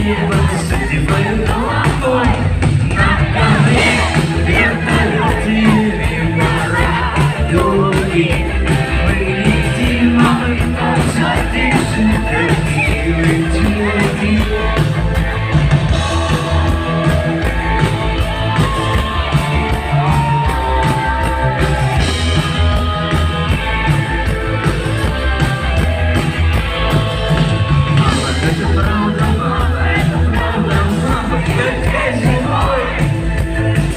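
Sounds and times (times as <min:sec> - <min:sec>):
person singing: 0:00.0 - 0:17.2, 0:26.8 - 0:33.9
live rock band playing: 0:00.0 - 0:33.9.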